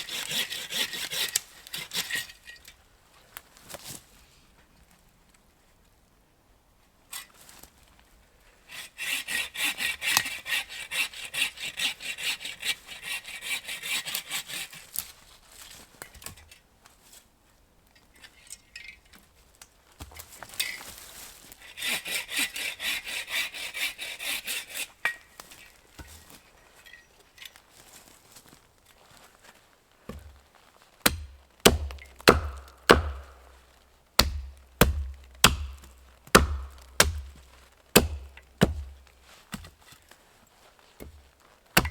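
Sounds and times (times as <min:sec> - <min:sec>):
hand saw cutting wood: 0:00.0 - 0:02.4, 0:08.7 - 0:15.0, 0:21.6 - 0:25.7, 0:31.0 - 0:40.0.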